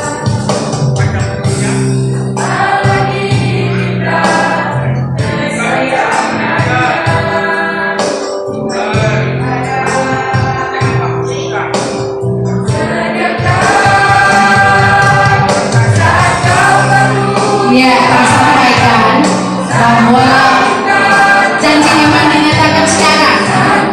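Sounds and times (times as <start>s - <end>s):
choir singing gospel song: 0.0s - 23.9s.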